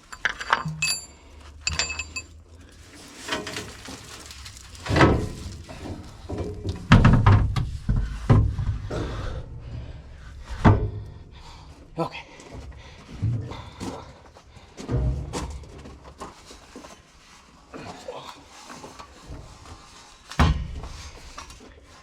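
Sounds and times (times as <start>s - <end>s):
metal clinks: 0.0s - 2.4s
knocks and thuds from tools: 4.8s - 9.1s, 10.5s - 11.1s, 20.4s - 21.1s.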